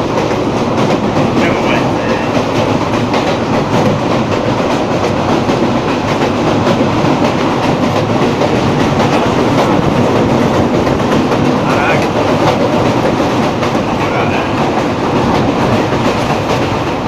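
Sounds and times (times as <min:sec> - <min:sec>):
train wheels on rails over bridge: 0:00.0 - 0:17.0.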